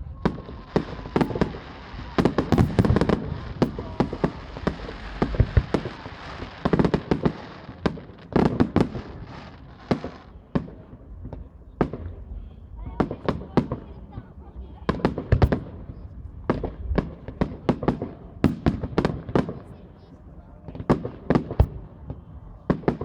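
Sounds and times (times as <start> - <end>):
fireworks crackling: 0.0 - 12.1
firework bursts and bangs: 0.0 - 23.0.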